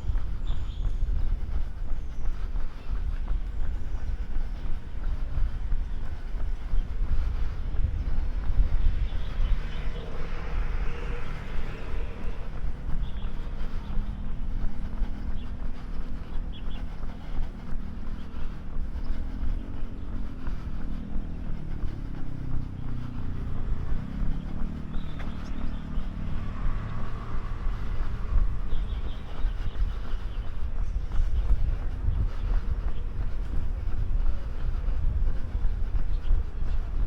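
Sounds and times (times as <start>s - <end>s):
road traffic rumble: 0.0s - 37.0s
vehicle engine passing: 7.0s - 35.9s.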